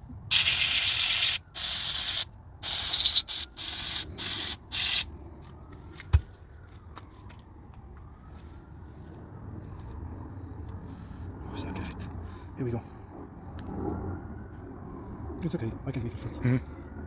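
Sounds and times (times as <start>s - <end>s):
spray hissing in short bursts: 0.3s - 5.0s.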